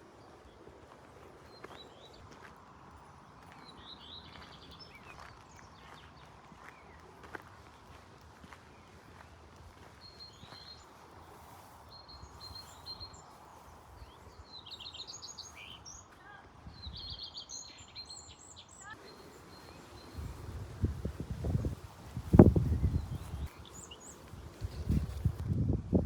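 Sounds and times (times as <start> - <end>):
songbirds chirping and singing: 9.8 - 25.4.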